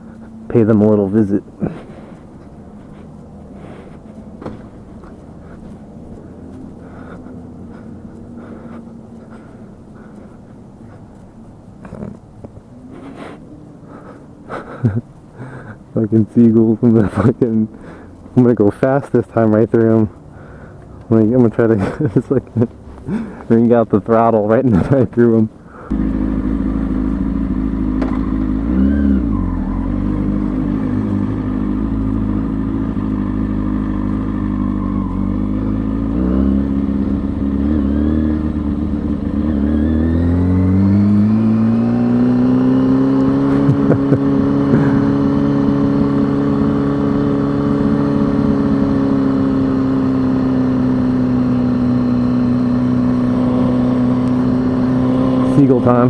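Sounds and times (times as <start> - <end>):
motorcycle engine revving: 0.0 - 11.2, 21.5 - 56.0.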